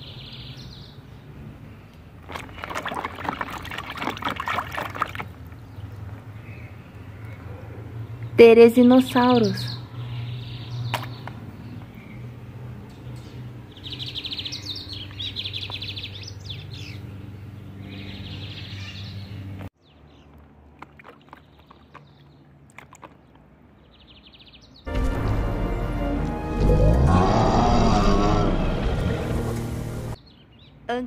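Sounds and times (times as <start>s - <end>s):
small birds trilling: 0.0s - 20.4s, 21.0s - 24.9s.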